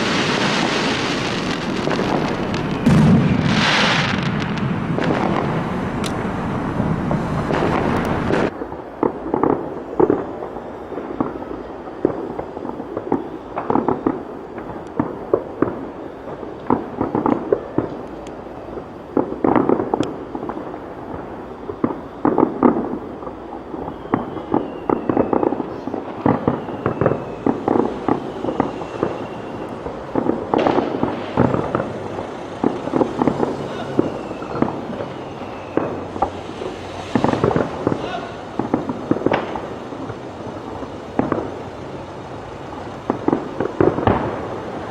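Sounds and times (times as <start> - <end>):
fireworks bangs and crackles: 0.0 - 44.9
faint falling whistles: 23.3 - 39.8.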